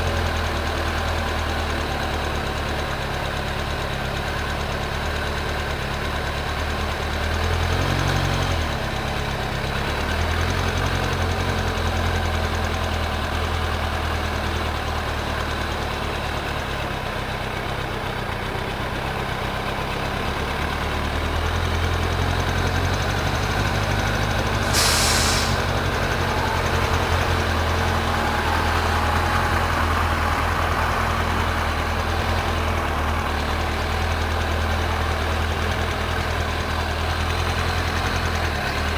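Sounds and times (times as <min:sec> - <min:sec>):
engine idling: 0:00.0 - 0:38.9
short burst of hiss: 0:24.5 - 0:25.8.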